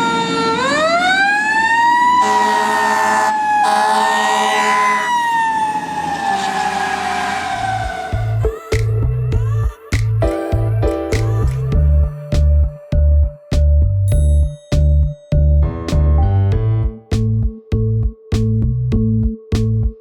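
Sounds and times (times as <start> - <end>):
second steady siren tone: 0.0 - 8.4
fire truck siren wailing: 0.0 - 8.5.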